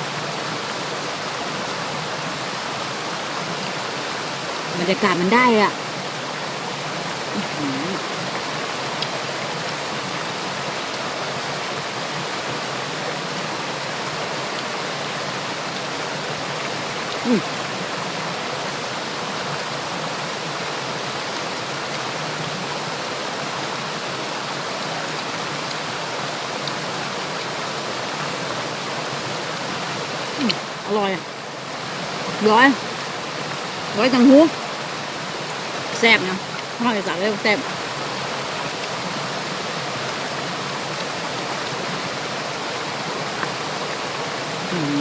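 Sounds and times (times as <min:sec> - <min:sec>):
waterfall and stream rushing: 0:00.0 - 0:45.0
brief voice: 0:44.7 - 0:45.0.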